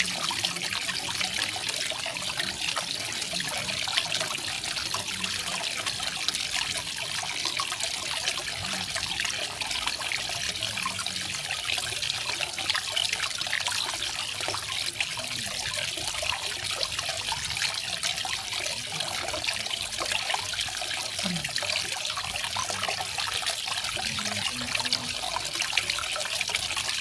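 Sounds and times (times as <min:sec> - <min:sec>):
small waterfall splashing: 0:00.0 - 0:27.0.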